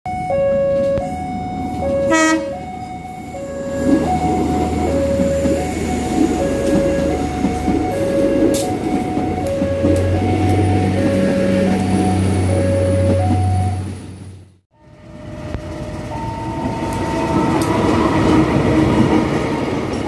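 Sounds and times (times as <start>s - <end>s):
two-tone level crossing alarm: 0.1s - 14.0s, 14.8s - 19.3s
passing train rumble and rattle: 0.3s - 20.0s
train horn toot: 0.7s - 13.8s.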